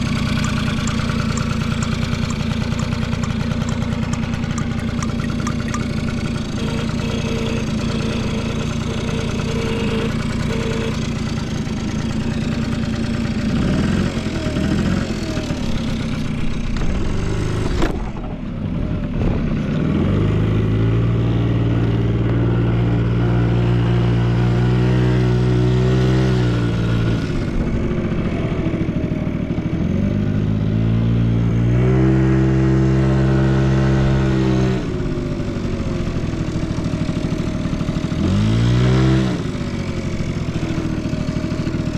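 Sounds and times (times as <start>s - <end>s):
scooter engine idling and revving: 0.0s - 41.9s
sharp click: 0.3s - 6.1s.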